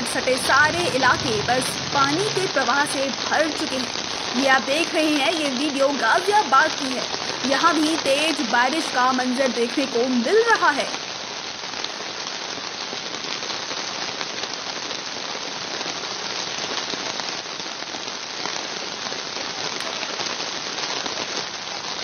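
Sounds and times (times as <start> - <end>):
heavy rain pouring: 0.0 - 22.0
patter of raindrops: 0.0 - 22.0.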